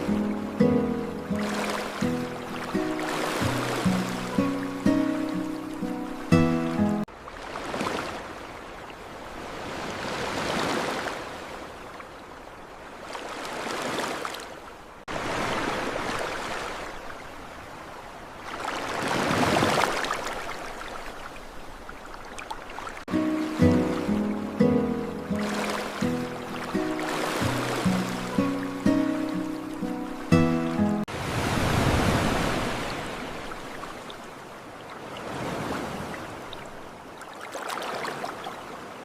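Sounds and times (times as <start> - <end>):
music: 0.0 - 7.1, 23.1 - 31.1
ocean waves washing in: 0.0 - 39.0.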